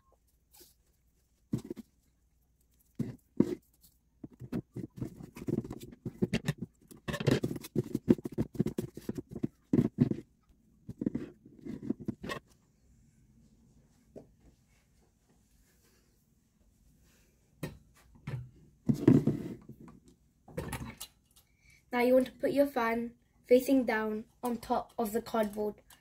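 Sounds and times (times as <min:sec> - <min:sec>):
tape and cardboard scraping: 0:02.9 - 0:10.3.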